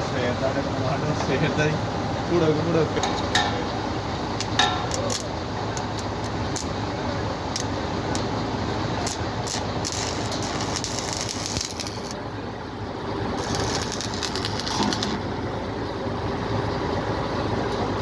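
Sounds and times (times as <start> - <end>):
steady engine hum: 0.0 - 18.0
welding arc crackling: 4.4 - 12.2, 13.3 - 15.2.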